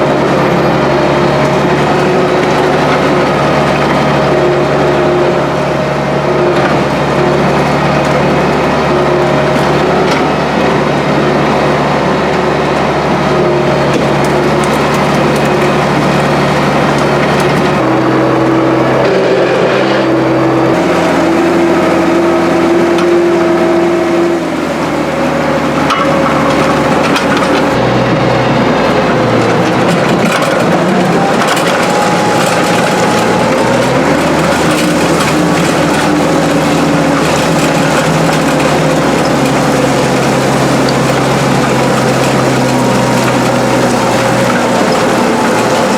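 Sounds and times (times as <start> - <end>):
tractor diesel engine under load: 0.0 - 45.9
gravel and stones crunching: 20.7 - 27.8, 28.6 - 45.9.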